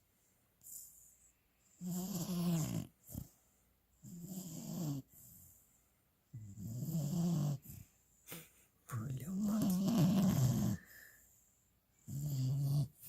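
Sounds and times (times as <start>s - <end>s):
puppy snoring: 0.6s - 3.4s, 4.0s - 5.6s, 6.3s - 8.5s, 9.1s - 11.2s, 12.0s - 13.0s
quiet breathing: 7.6s - 12.1s.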